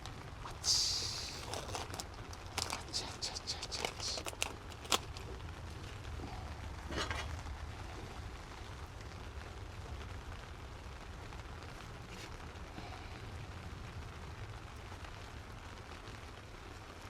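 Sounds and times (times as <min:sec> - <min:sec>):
short crackle: 0:00.0 - 0:09.2
steady rain falling: 0:00.0 - 0:17.0.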